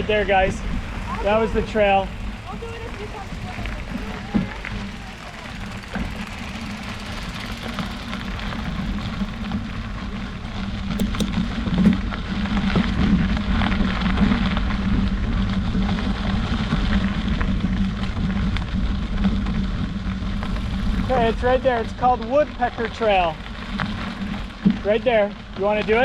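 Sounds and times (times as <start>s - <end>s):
bicycle tyre rolling noise: 0.0s - 26.0s
wind rumbling on microphone: 0.0s - 26.0s.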